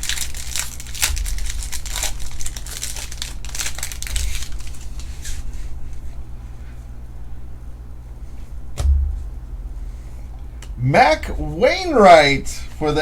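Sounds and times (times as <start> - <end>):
foil wrappers crinkling and tearing: 0.0 - 5.7.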